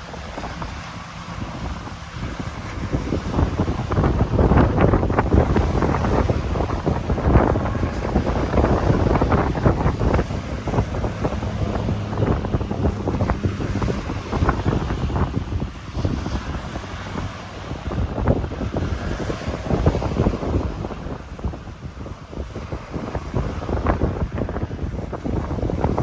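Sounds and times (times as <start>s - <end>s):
sea waves breaking: 0.0s - 26.0s
wind buffeting microphone: 0.0s - 26.0s.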